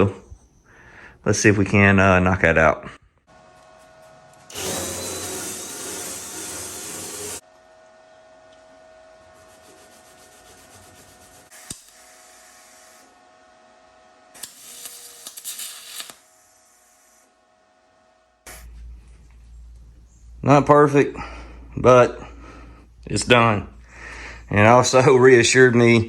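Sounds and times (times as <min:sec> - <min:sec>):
welding arc crackling: 0:04.5 - 0:07.4, 0:11.1 - 0:13.0, 0:14.4 - 0:17.2.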